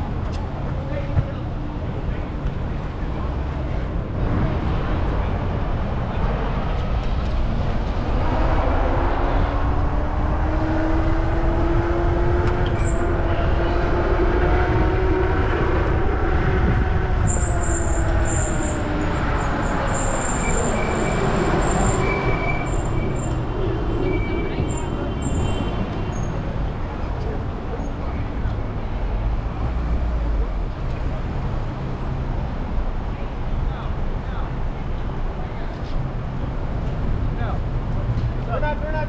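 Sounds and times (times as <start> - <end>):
wind rumble on microphone: 0.0 - 19.9.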